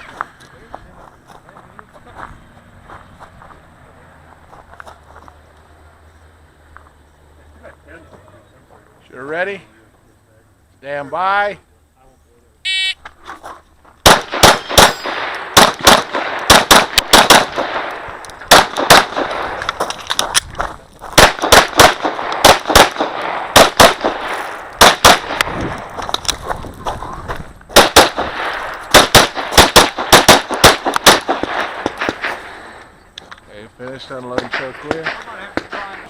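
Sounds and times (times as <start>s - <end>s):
pistol shots with echo: 14.0s - 19.6s, 21.2s - 25.6s, 27.8s - 32.7s.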